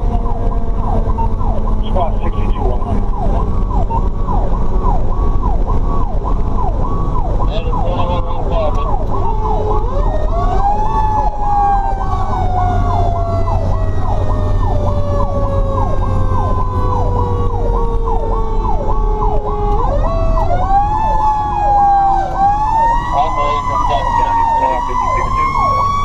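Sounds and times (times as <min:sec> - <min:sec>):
electronic siren sweeping: 0:00.0 - 0:26.0
truck engine rumbling: 0:00.0 - 0:26.0.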